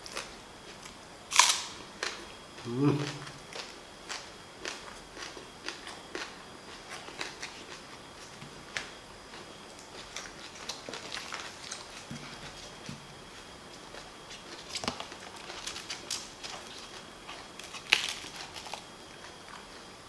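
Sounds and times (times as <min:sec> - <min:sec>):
wet chewing crunches: 0:00.0 - 0:19.9.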